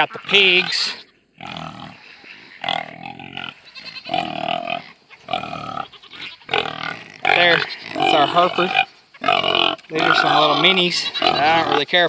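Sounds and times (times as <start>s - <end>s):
farm animals calling: 0.0s - 12.0s.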